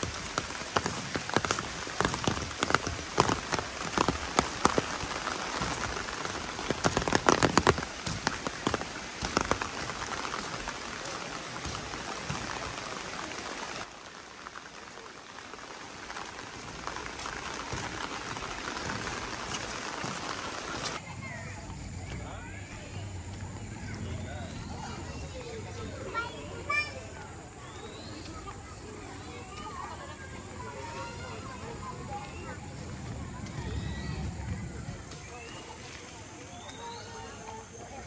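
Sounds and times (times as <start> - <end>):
sharp raindrop hits: 0.0 - 21.0
rain falling: 0.0 - 38.0.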